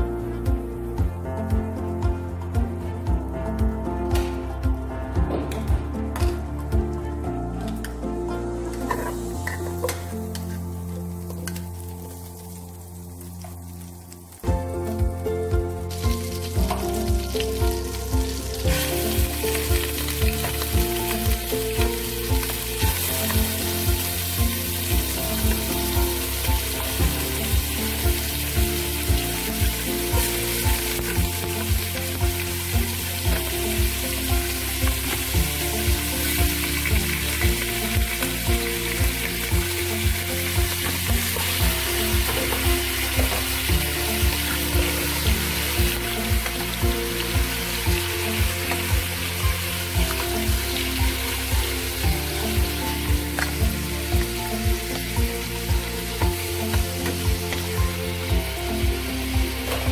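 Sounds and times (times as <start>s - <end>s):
background music with beat: 0.0s - 59.9s
chicken sizzling in hot oil: 8.8s - 15.0s, 15.6s - 59.9s.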